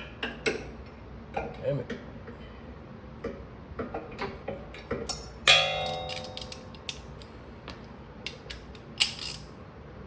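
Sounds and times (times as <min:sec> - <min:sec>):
ringing metal clang: 0:05.5 - 0:06.7.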